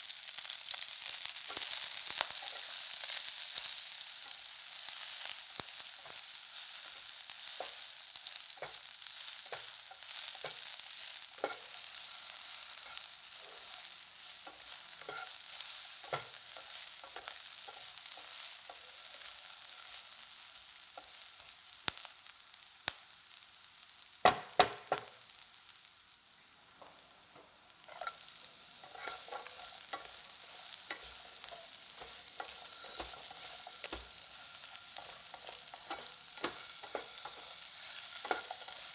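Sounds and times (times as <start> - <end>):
food sizzling in a pan: 0.0 - 38.9
utensil clicking against pan: 11.4 - 11.8, 16.0 - 18.8, 26.8 - 38.9.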